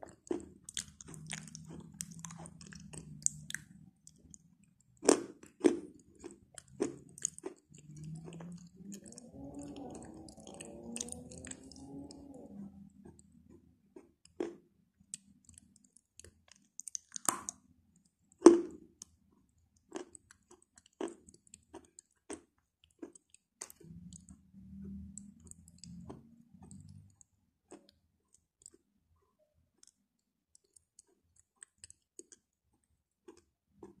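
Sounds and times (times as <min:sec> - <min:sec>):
chalk crunching while chewed: 0:00.0 - 0:12.4, 0:13.0 - 0:17.6, 0:19.8 - 0:28.9, 0:29.8 - 0:34.0.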